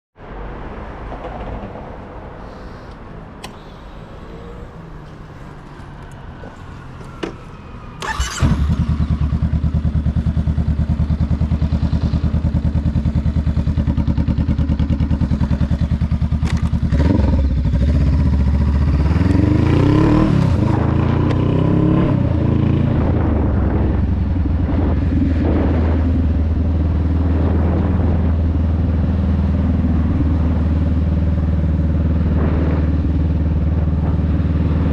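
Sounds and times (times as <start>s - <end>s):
clicks: 2.9s - 5.2s
motorcycle engine: 3.4s - 34.9s.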